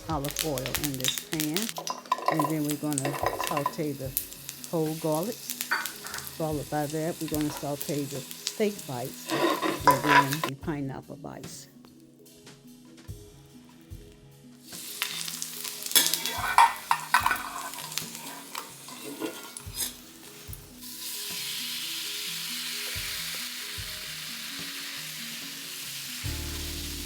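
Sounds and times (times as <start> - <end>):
garlic sizzling in hot oil: 0.0 - 10.5, 14.6 - 27.0
stirring clatter: 1.8 - 3.8, 9.3 - 10.5, 16.0 - 20.0.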